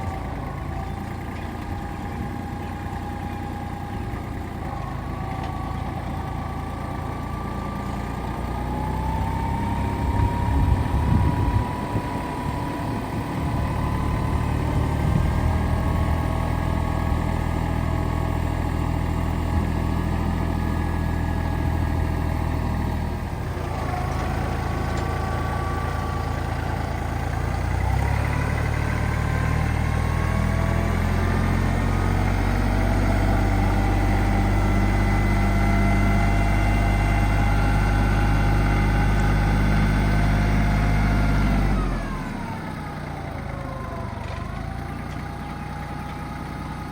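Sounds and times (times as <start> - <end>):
tractor diesel engine revving: 0.0 - 46.9.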